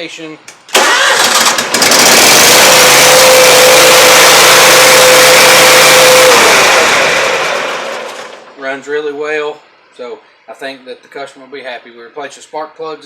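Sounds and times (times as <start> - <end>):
lawn mower engine running: 0.7 - 8.5.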